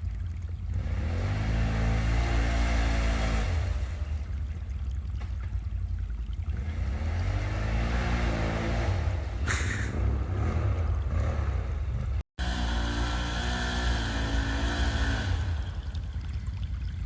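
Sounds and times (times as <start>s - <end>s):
atv engine revving: 0.7s - 4.4s, 6.6s - 16.2s
sharp hiss or splash: 9.4s - 10.0s.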